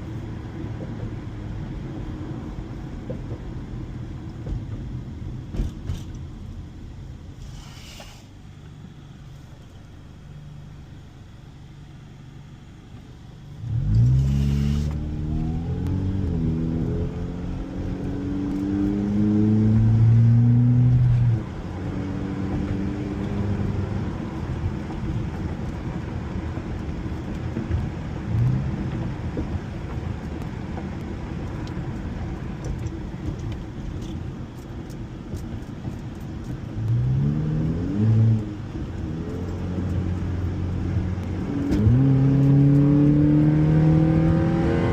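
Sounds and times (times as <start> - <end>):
road noise: 0.0 - 44.9
car engine accelerating: 13.4 - 44.9.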